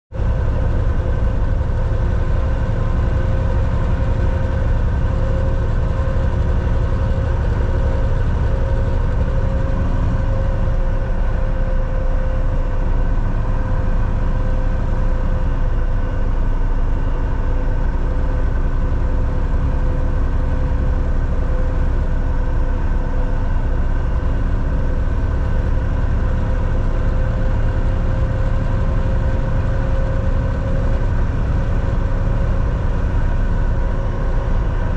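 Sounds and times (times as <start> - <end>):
truck diesel engine rumbling: 0.1 - 34.9.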